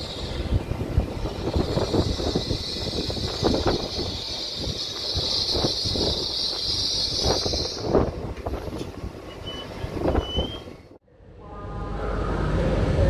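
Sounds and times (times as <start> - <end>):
steady high hiss: 0.0 - 8.1
high wheel squeals: 0.0 - 8.2, 8.8 - 11.0.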